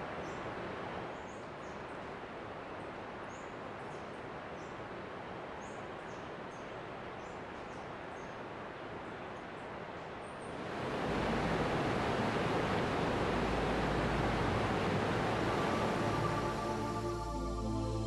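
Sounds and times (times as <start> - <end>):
steady rushing noise: 10.5 - 17.7.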